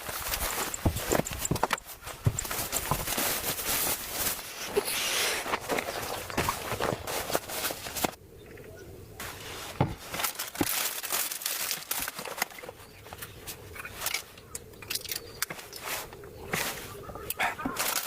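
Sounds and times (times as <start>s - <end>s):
crinkling and rustling: 0.0s - 8.2s, 9.2s - 18.0s.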